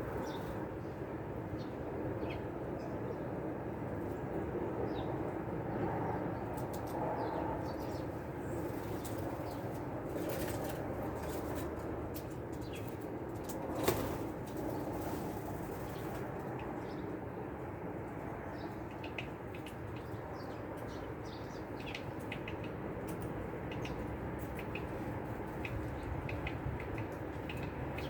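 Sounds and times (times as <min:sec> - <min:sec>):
bird wing flutters: 0:13.7 - 0:16.3.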